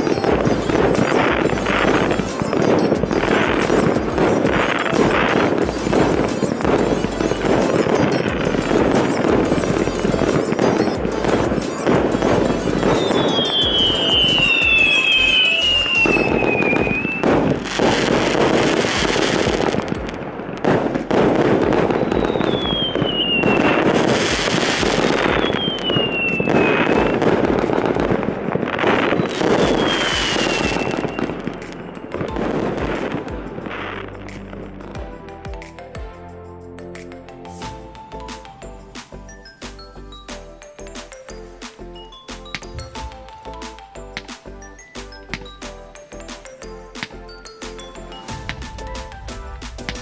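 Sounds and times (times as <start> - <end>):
fireworks crackling bangs: 0.0 - 35.7, 37.6 - 50.0
falling firework whistles: 7.5 - 19.6, 21.3 - 27.9, 28.8 - 31.4.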